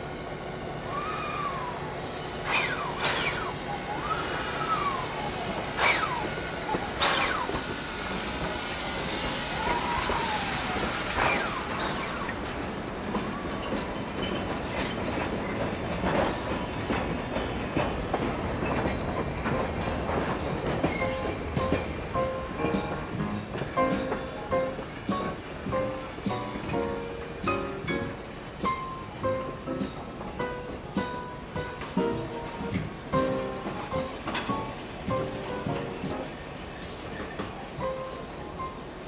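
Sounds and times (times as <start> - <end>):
freight train rolling past: 0.0 - 39.0
wheel flange squeals: 0.9 - 8.4, 9.0 - 15.6, 19.8 - 21.3, 36.2 - 38.9
wheels clicking over rail joints: 2.4 - 39.0.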